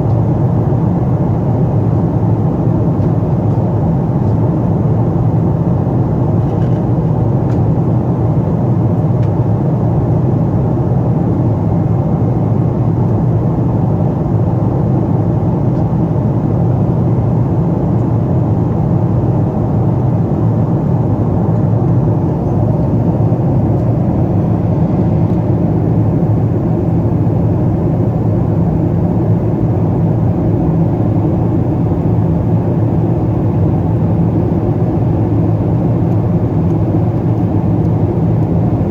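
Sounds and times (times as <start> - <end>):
airliner cabin noise: 0.0 - 38.9.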